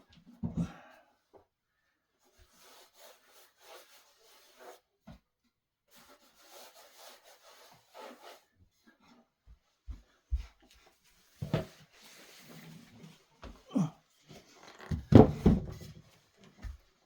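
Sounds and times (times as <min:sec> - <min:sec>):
wood rubbing and scraping: 0:14.4 - 0:15.9.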